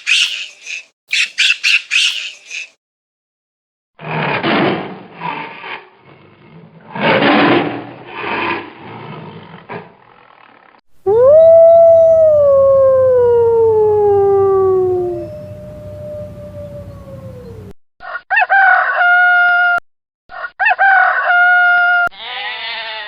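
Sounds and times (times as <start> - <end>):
wolf howling: 11.1 - 17.7.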